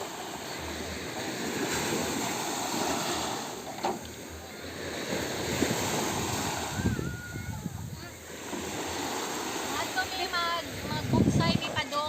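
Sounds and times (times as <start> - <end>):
sea water lapping: 0.0 - 12.0
wind buffeting microphone: 4.3 - 9.0, 10.0 - 12.0.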